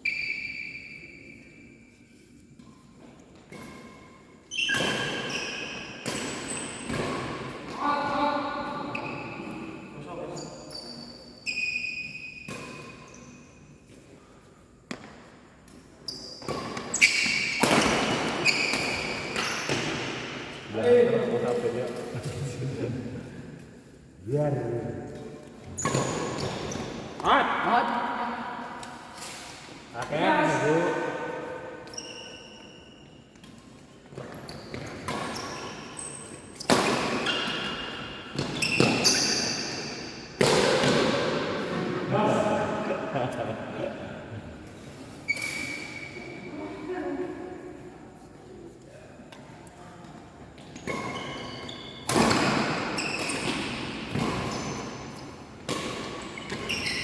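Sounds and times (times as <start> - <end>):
sneakers squeaking on court floor: 0.0 - 21.9, 25.2 - 27.5, 28.8 - 41.8, 44.4 - 46.9, 49.8 - 57.0
racket hitting shuttlecock: 6.0 - 7.8, 16.4 - 20.2, 36.5 - 41.8, 52.0 - 54.9.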